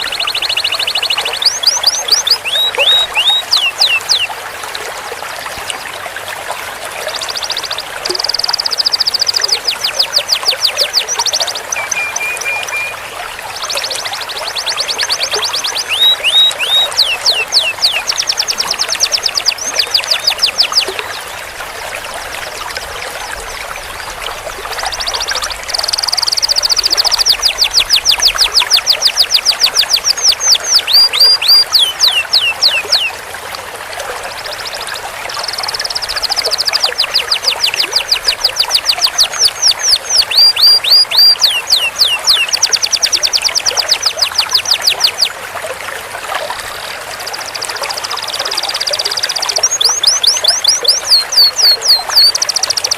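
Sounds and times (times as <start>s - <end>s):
canary singing trills: 0.0s - 4.3s, 7.2s - 21.2s, 24.8s - 33.2s, 35.4s - 45.4s, 47.3s - 52.9s.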